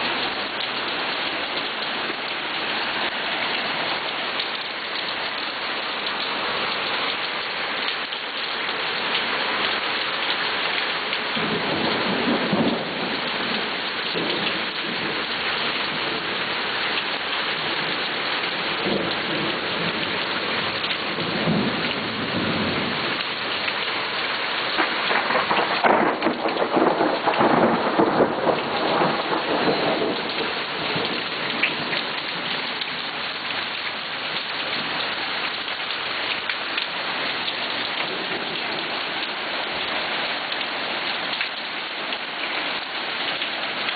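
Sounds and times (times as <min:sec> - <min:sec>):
rain falling steadily: 0:00.0 - 0:43.9
thunder rumbling: 0:11.4 - 0:15.2, 0:24.8 - 0:32.0.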